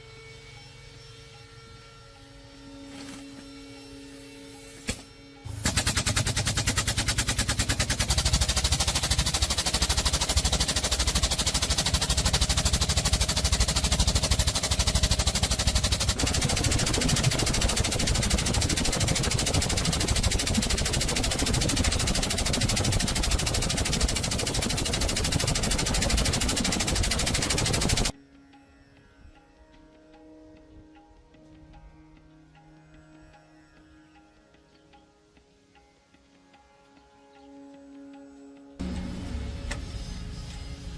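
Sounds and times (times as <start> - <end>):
metalworking tool rattling on steel: 5.5 - 28.1.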